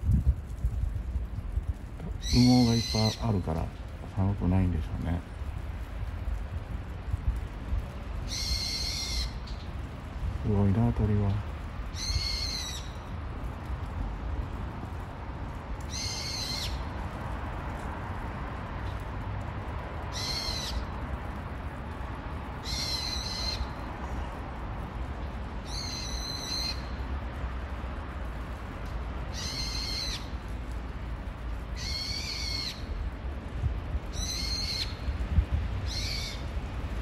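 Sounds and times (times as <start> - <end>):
songbird shrill calls: 8.3 - 9.6, 34.2 - 35.0, 35.9 - 36.4.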